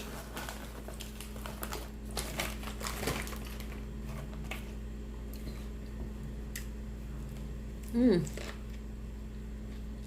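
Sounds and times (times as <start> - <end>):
chips crunching: 0.0 - 5.6
steady low hum: 0.0 - 10.0.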